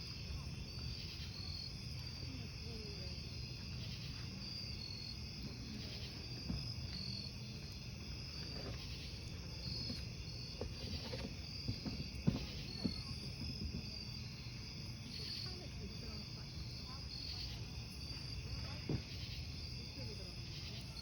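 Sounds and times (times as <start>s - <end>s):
crickets chirping: 0.0s - 21.0s
burning logs popping: 5.5s - 14.1s.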